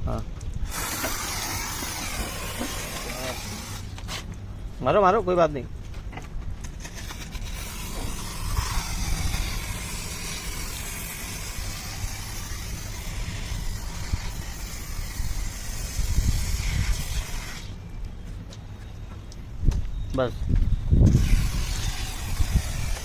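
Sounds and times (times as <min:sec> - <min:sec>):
pressure washer spraying water: 0:00.7 - 0:04.2, 0:07.0 - 0:17.7, 0:21.1 - 0:23.0.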